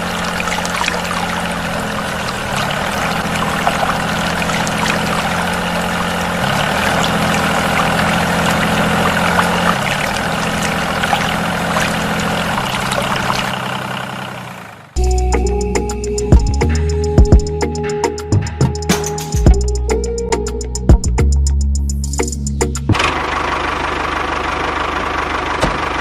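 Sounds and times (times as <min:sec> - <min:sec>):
liquid pouring and splashing: 0:00.0 - 0:13.8.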